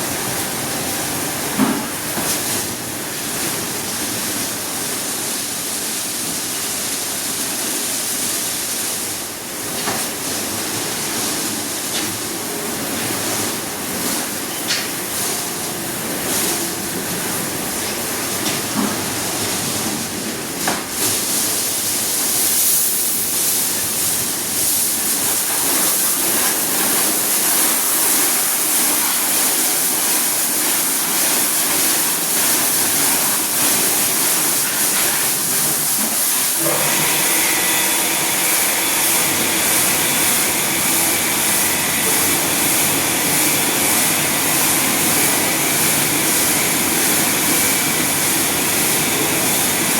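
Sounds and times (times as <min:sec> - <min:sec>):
water spraying onto car: 0:23.2 - 0:49.9
machine whine: 0:36.6 - 0:49.9.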